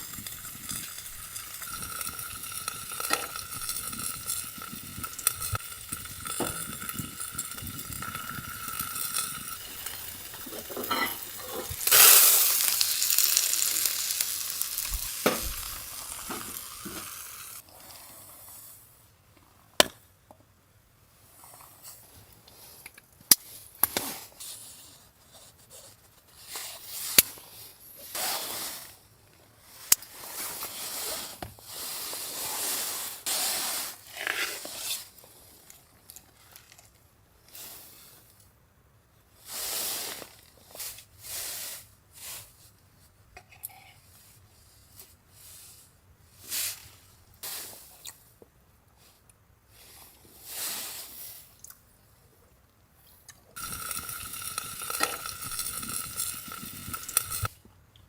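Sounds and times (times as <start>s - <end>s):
stirring clinks: 0.0s - 17.1s, 53.6s - 57.5s
food sizzling in a pan: 0.0s - 17.6s, 53.6s - 57.5s.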